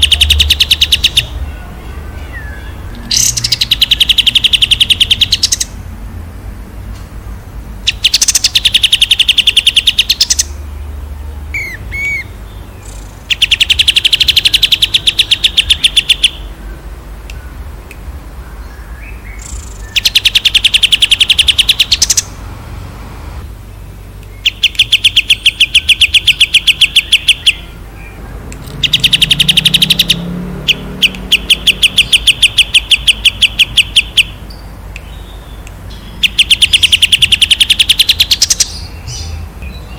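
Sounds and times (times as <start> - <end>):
songbird trilling: 0.0 - 5.8, 7.8 - 22.4, 23.7 - 39.9.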